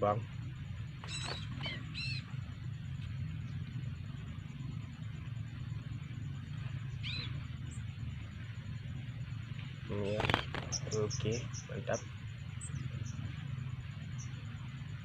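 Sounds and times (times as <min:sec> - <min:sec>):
bird chirp: 0:00.0 - 0:15.0
faint high pulsing buzz: 0:00.0 - 0:15.0
steady low rumble: 0:00.0 - 0:15.0.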